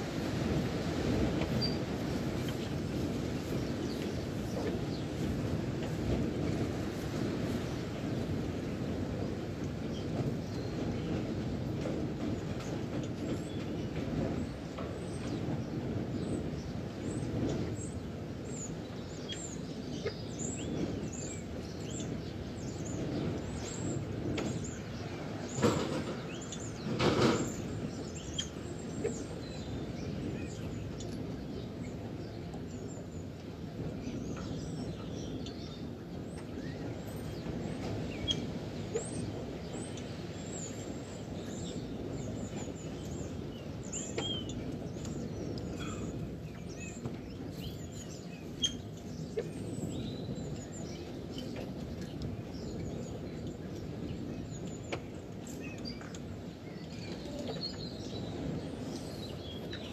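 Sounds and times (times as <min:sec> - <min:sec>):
low outdoor rumble: 0:00.0 - 0:59.9
small birds chirping: 0:12.2 - 0:59.9.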